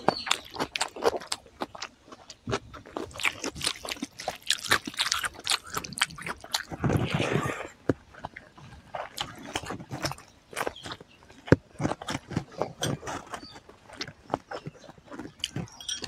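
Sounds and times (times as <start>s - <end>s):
wet chewing and lip smacking: 0.0s - 16.0s.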